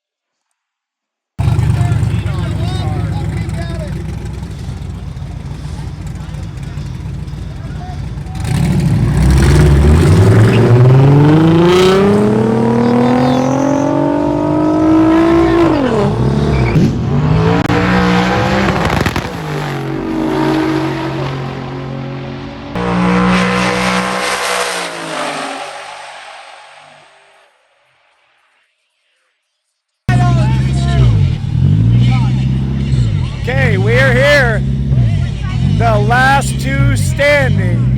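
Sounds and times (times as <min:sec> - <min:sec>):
car engine accelerating: 0:01.4 - 0:27.2, 0:30.1 - 0:37.9.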